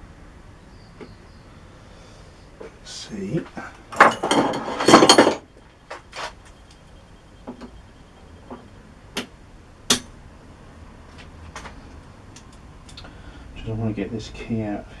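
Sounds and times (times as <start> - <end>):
metal parts clattering: 3.9 - 5.4
metal tools clinking: 3.9 - 5.5.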